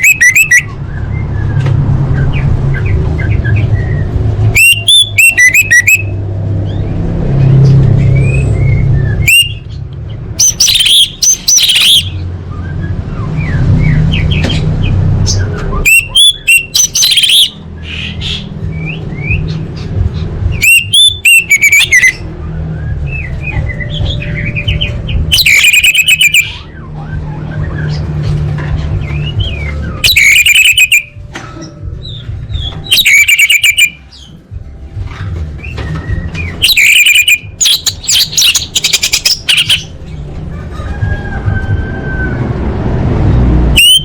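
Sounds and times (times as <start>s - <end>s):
thrush rapid high chirps: 32.9s - 34.0s, 36.5s - 39.9s.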